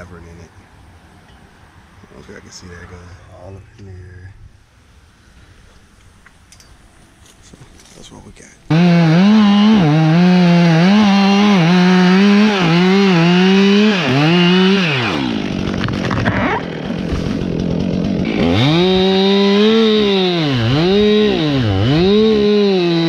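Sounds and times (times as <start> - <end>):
chainsaw running at high revs: 8.7 - 23.0.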